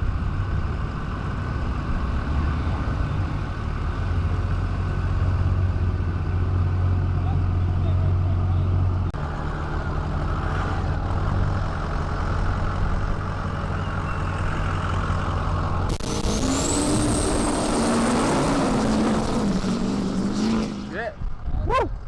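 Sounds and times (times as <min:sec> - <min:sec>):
diesel truck engine droning: 0:00.0 - 0:21.3
louder diesel engine: 0:00.0 - 0:21.3
turbo whine: 0:15.9 - 0:20.7.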